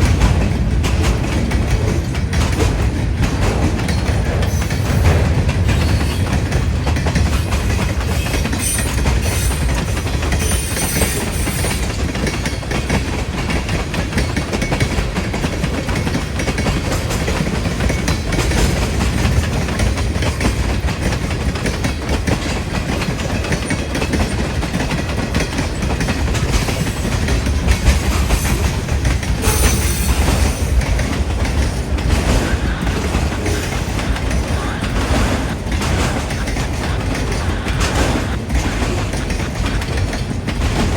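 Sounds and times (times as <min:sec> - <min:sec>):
freight train wheels clicking: 0:00.0 - 0:40.9.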